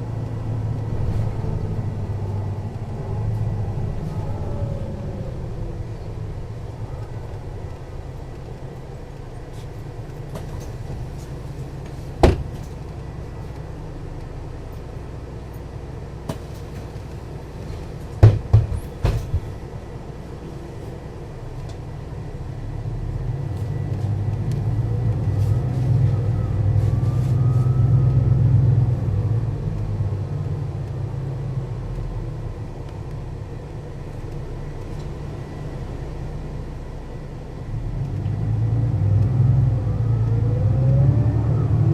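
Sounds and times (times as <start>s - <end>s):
bus diesel engine running: 0.0s - 41.9s
sharp knocks: 18.2s - 19.5s.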